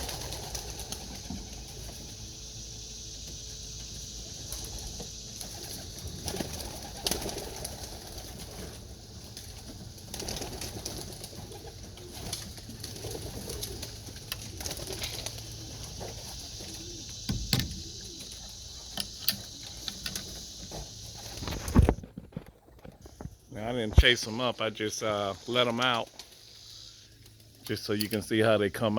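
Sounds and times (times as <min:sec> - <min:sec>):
pigeons cooing: 0:00.0 - 0:21.8
sharp clicks and knocks: 0:17.2 - 0:20.3.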